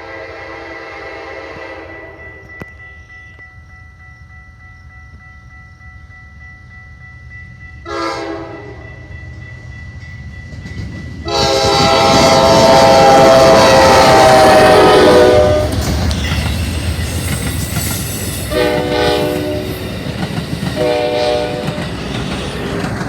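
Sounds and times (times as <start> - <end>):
train horn blasts: 0.0 - 2.6, 7.8 - 8.9, 11.2 - 16.2, 18.4 - 19.9, 20.8 - 21.9
train rumbling: 0.0 - 23.0
faint steady ringing tones: 1.9 - 11.3.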